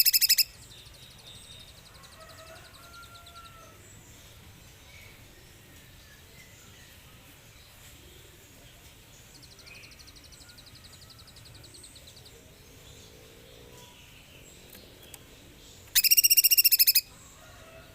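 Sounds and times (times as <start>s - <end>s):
bird chirps: 0.0s - 3.7s, 8.7s - 17.3s
songbird singing: 0.0s - 17.9s.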